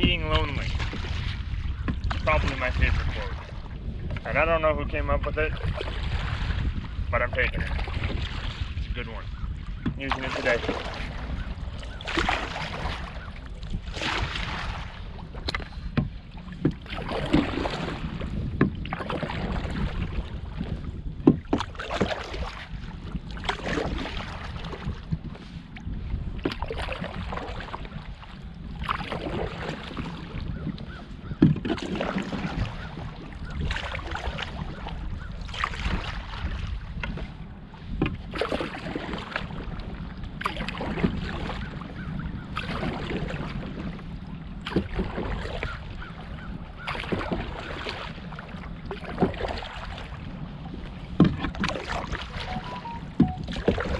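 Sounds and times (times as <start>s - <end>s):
paddle knocking: 0.0s - 4.4s, 9.6s - 25.4s, 30.7s - 36.4s, 37.9s - 43.9s, 50.8s - 53.9s
wind rumble on microphone: 0.0s - 53.9s.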